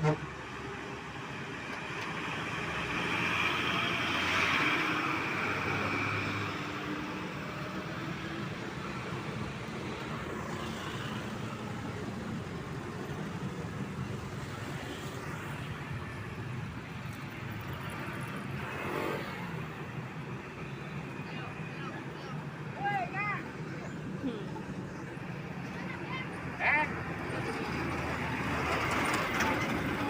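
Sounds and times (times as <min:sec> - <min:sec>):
road traffic engines: 0:00.0 - 0:30.0
loud vehicle passing: 0:01.4 - 0:09.4, 0:23.0 - 0:30.0.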